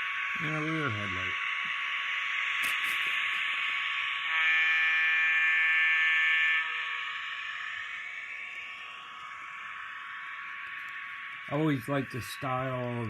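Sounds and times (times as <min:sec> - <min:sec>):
buzzing hiss of model train: 0:02.6 - 0:04.4
model train horn blast: 0:04.3 - 0:05.4.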